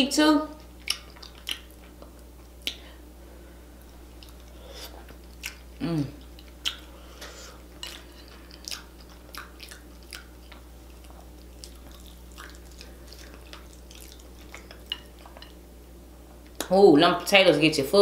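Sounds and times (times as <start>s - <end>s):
wet chewing and smacking: 0.6s - 2.9s, 3.8s - 15.6s.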